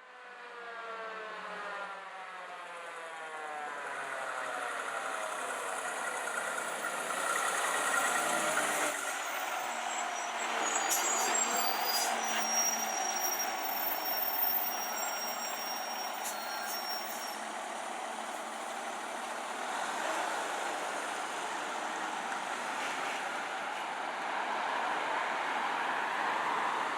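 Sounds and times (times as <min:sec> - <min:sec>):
road noise: 0:00.4 - 0:26.9
diesel truck engine: 0:03.7 - 0:24.0.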